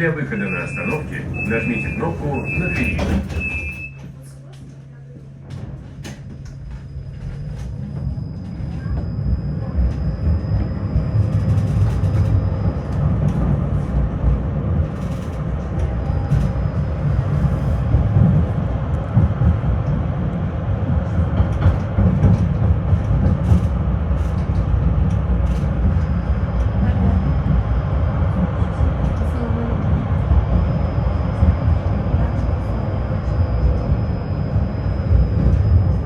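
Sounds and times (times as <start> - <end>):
tram wheels rumbling on rails: 0.0 - 36.0.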